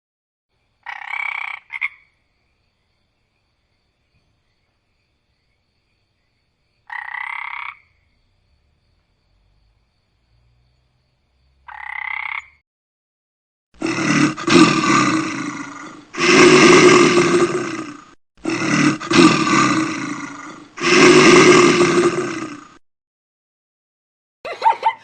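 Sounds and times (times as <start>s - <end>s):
large animal roaring: 13.8s - 22.8s.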